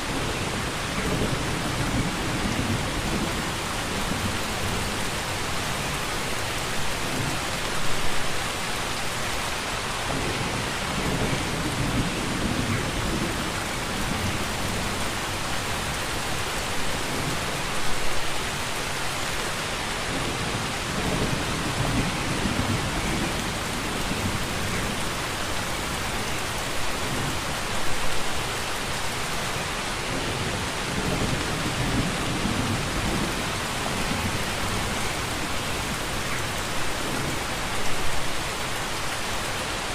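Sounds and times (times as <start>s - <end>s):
distant thunder rumbles: 10.1s - 15.1s, 20.1s - 25.1s, 30.1s - 36.3s.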